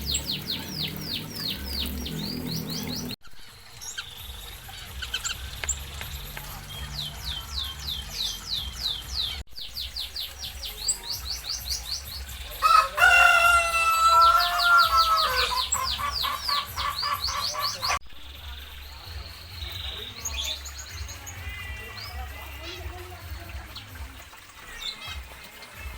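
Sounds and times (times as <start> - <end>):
small birds chirping: 0.0 - 25.9
rooster crowing: 12.6 - 17.2.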